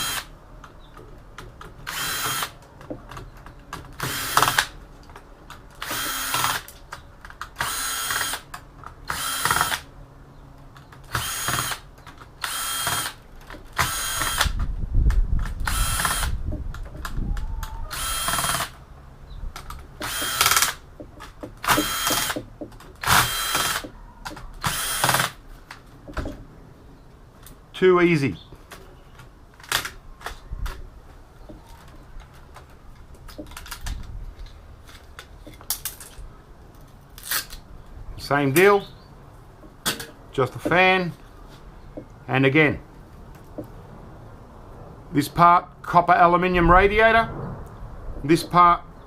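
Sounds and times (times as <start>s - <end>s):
electric screwdriver motor whine: 5.8s - 6.6s, 12.4s - 13.2s, 13.8s - 14.6s, 15.6s - 16.4s, 17.9s - 18.7s, 20.0s - 20.8s, 21.7s - 22.4s, 23.0s - 23.9s
low rumble: 46.6s - 49.0s.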